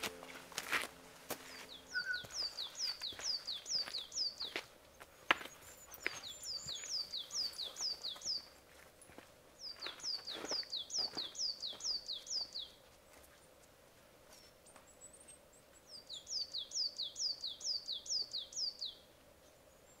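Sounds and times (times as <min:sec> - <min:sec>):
songbird two-note phrase: 0:00.0 - 0:03.2.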